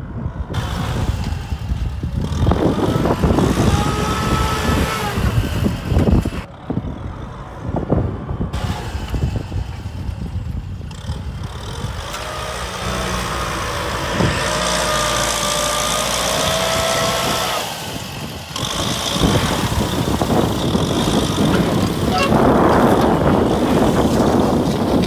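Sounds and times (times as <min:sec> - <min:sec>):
tractor diesel engine running: 0:00.0 - 0:25.0
thin engine whine: 0:00.2 - 0:25.0.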